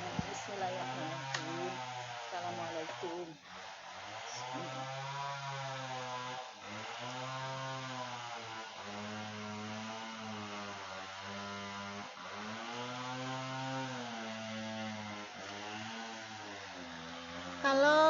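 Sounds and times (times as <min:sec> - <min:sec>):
low voice humming long notes: 0:17.6 - 0:18.0.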